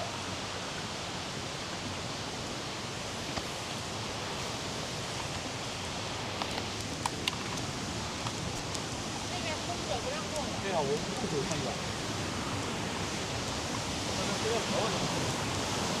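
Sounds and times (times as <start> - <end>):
steady outdoor noise: 0.0 - 16.0
light sharp ticks or crunches: 6.1 - 13.9.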